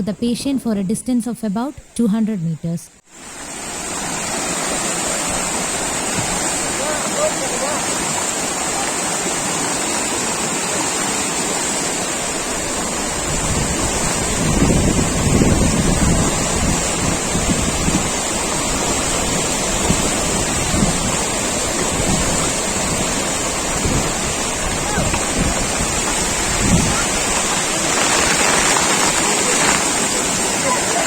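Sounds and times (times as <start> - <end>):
rushing floodwater: 3.1 - 31.0
wind buffeting microphone: 12.4 - 31.0.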